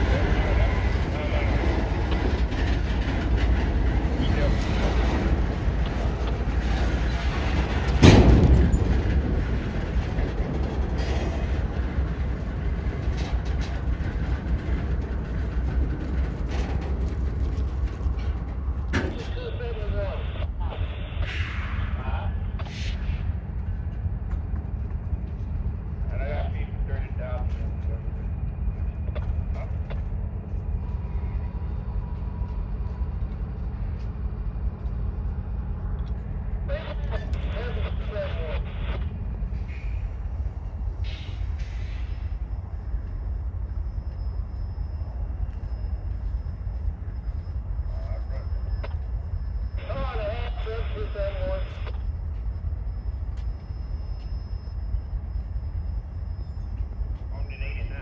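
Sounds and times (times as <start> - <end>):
loud bang: 0.0 - 11.8, 21.2 - 23.3
freight train rumbling: 0.0 - 58.0.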